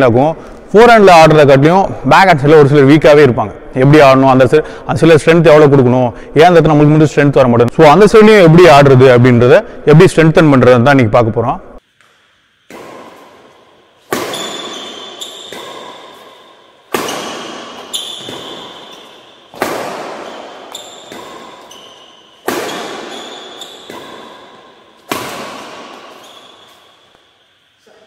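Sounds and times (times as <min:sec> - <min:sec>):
racket hitting shuttlecock: 0:11.9 - 0:28.0.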